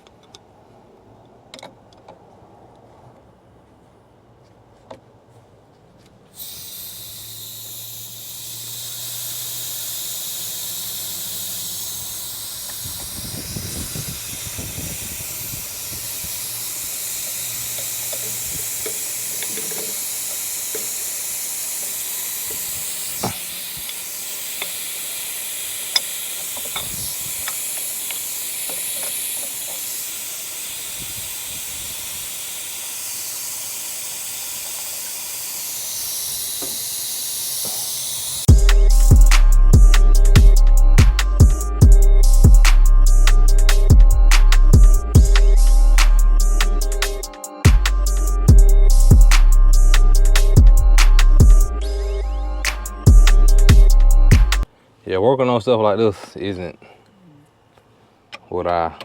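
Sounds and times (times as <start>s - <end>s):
compressed air hissing: 6.4s - 54.7s
metallic tool clicks: 17.2s - 21.1s, 21.8s - 29.9s.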